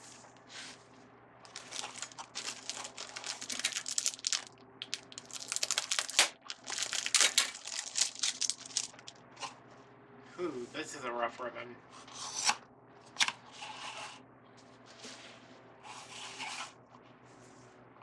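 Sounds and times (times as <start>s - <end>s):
craft ribbon rustling and crinkling: 1.5s - 9.2s.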